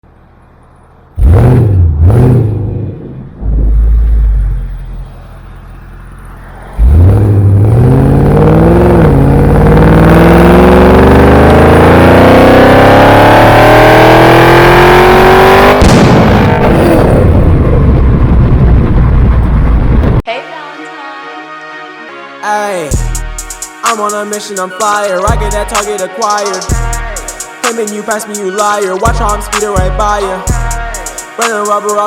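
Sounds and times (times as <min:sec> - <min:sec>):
car engine revving: 0:00.2 - 0:20.0
sudden burst of noise: 0:01.2 - 0:07.4, 0:15.7 - 0:20.2.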